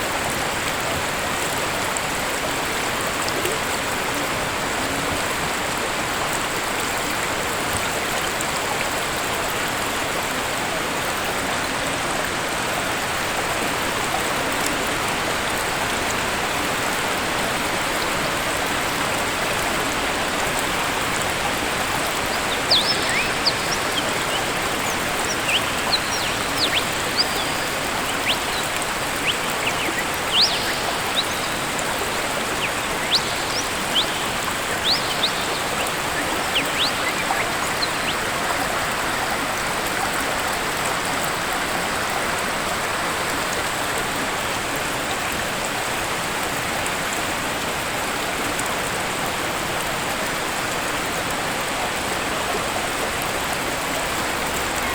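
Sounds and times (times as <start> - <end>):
waterfall rushing: 0.0 - 46.0
small birds chirping: 19.4 - 40.1.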